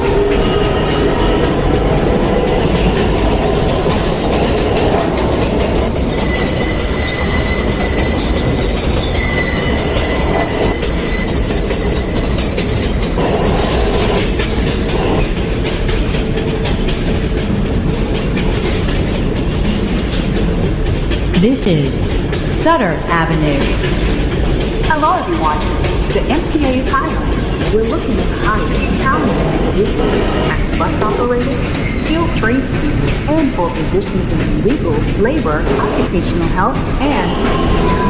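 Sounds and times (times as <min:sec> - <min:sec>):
train wheels rumbling on rails: 0:00.0 - 0:38.0
high wheel squeal: 0:05.7 - 0:14.2.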